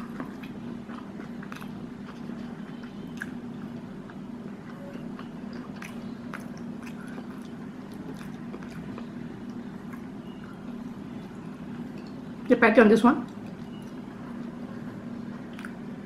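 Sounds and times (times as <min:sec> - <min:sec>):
person chewing crispy food: 0:00.0 - 0:12.4, 0:13.3 - 0:16.0
steady low hum: 0:00.0 - 0:16.0.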